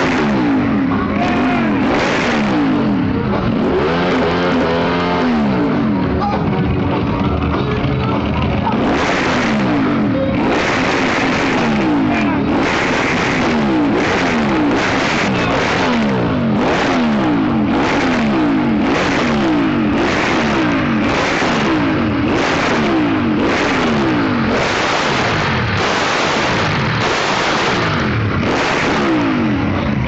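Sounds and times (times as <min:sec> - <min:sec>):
motorcycle engine revving hard: 0:00.0 - 0:30.0.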